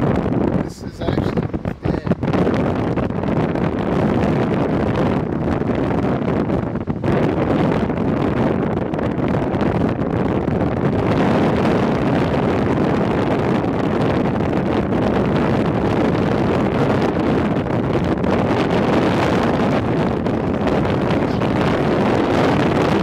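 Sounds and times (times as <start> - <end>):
wind blowing across microphone: 0.0 - 23.0
wind buffeting a car: 0.0 - 23.0.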